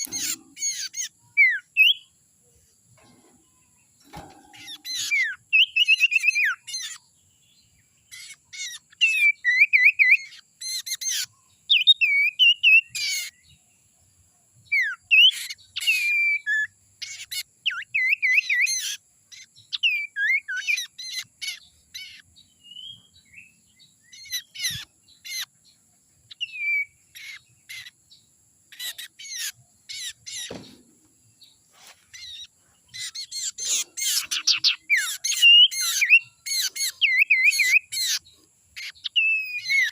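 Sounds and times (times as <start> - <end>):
bird chirps and trilled whistles: 0.0 - 2.1, 4.0 - 7.0, 8.2 - 13.4, 14.8 - 23.5, 26.3 - 27.9, 32.2 - 38.2, 38.8 - 39.9.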